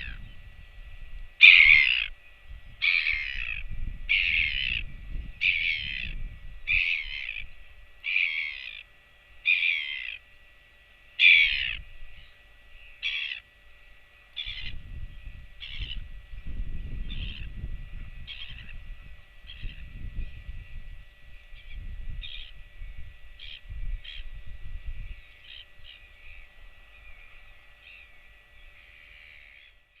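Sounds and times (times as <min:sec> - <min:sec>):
wind rumbling on microphone: 0:00.0 - 0:08.0, 0:14.4 - 0:28.0
bird cawing harshly: 0:01.4 - 0:02.1, 0:02.8 - 0:04.8, 0:05.4 - 0:10.2, 0:11.2 - 0:11.8, 0:13.0 - 0:13.4.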